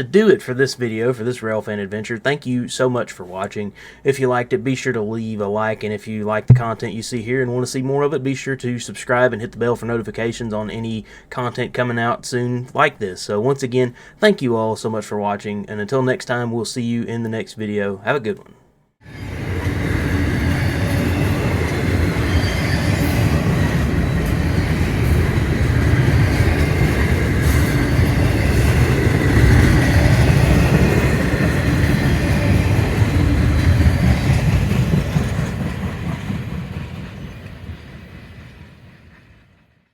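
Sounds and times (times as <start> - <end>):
freight train rumbling past: 19.1 - 39.8.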